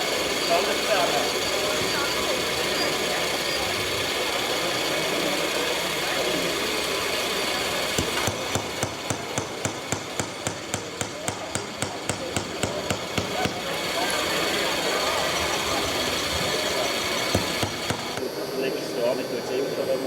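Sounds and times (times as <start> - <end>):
mechanical background noise: 0.0 - 20.0
regular knocking: 7.9 - 13.7, 16.5 - 18.2.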